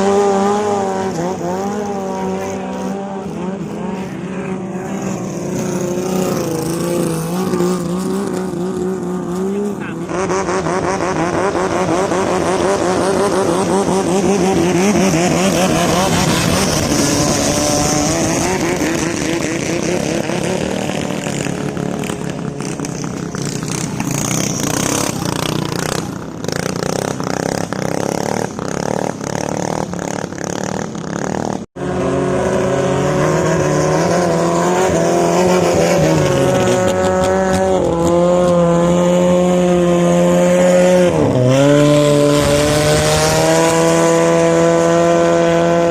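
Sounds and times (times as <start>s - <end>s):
boat engine steady pitch: 0.0s - 30.7s
longtail boat engines running hard: 10.9s - 31.1s.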